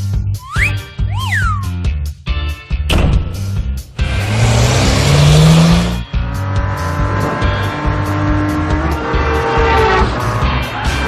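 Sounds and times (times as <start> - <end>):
cheerful background music: 0.0 - 3.9
cartoon engine revving up: 0.4 - 1.8.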